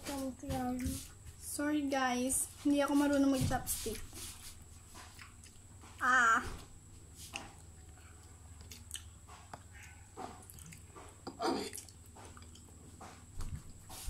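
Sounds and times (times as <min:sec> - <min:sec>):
person chewing noodles: 0:04.9 - 0:05.8, 0:07.4 - 0:13.0
wet mouth clicks: 0:08.6 - 0:12.7.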